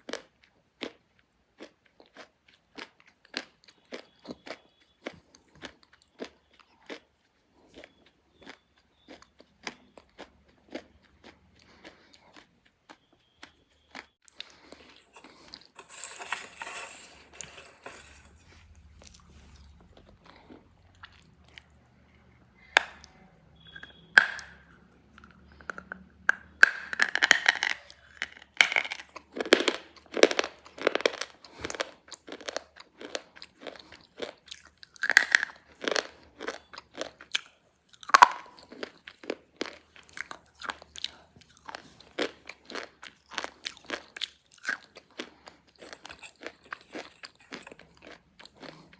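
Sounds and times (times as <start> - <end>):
slate pencils crunching in mouth: 14.3 - 19.3, 26.7 - 48.9.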